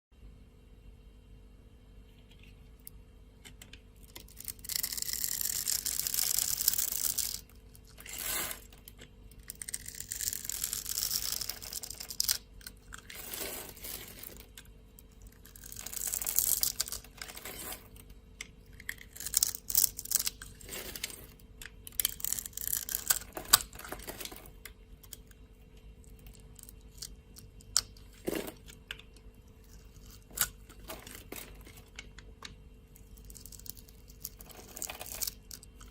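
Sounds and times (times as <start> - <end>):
knife scraping dry soap: 4.1 - 18.1, 18.7 - 25.3, 33.1 - 35.9.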